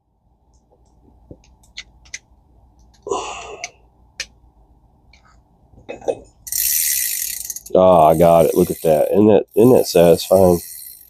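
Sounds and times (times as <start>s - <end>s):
small metal parts clicking: 6.4s - 11.0s.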